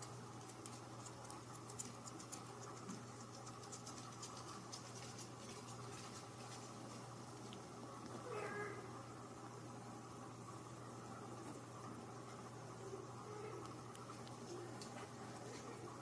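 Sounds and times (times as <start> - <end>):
light scratching and clicking: 0.0 - 8.2.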